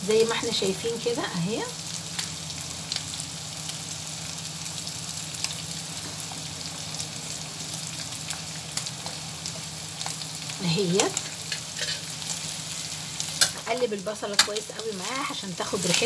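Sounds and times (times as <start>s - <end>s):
meat sizzling in a frying pan: 0.0s - 16.0s
sharp crackles of frying onion: 0.0s - 16.0s.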